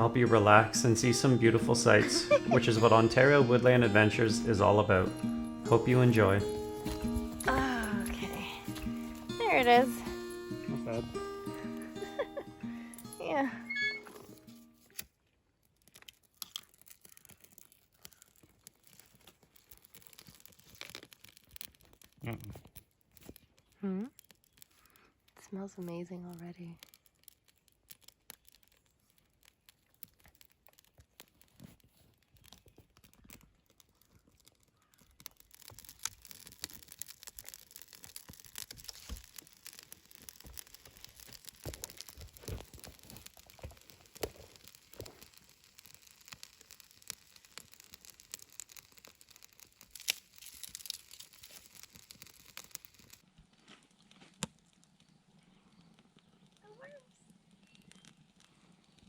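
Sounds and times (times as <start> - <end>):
food sizzling in a pan: 1.7 - 4.5, 34.8 - 53.2.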